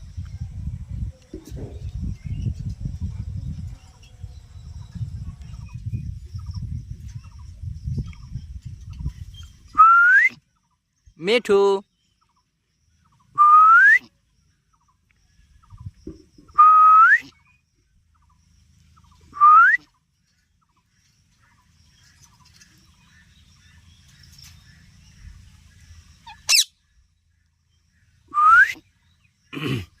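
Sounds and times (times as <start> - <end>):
parrot whistling: 26.3 - 26.7.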